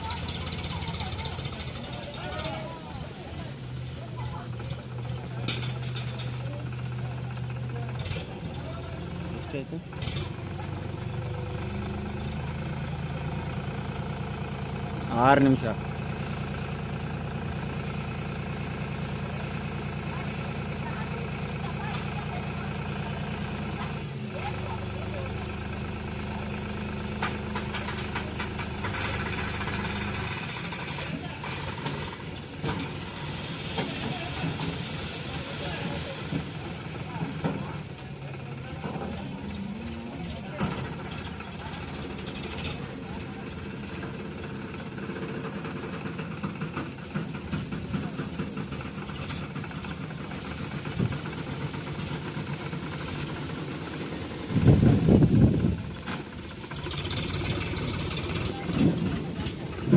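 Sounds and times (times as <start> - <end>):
tractor engine running: 0.0 - 59.9
rattling and clicking: 27.2 - 32.9.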